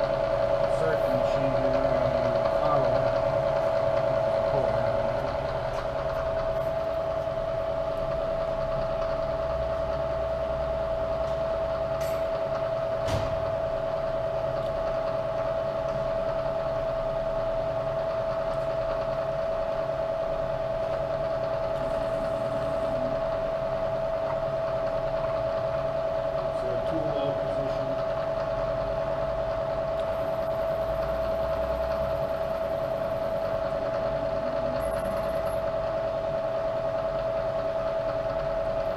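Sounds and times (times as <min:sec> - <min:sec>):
milling machine whining: 0:00.0 - 0:38.9.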